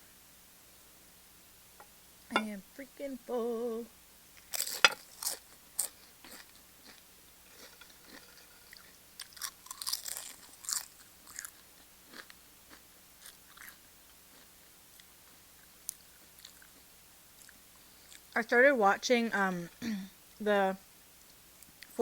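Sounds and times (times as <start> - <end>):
chips crunching while chewed: 4.4 - 18.3.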